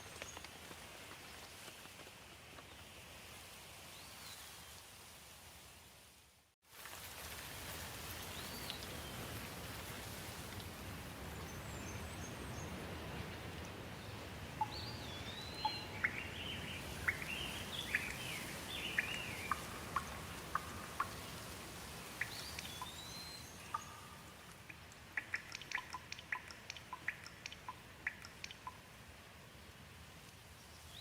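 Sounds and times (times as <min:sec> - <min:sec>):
rain hiss: 0:00.0 - 0:31.0
songbird chirping and whistling: 0:14.6 - 0:21.2, 0:22.2 - 0:24.3.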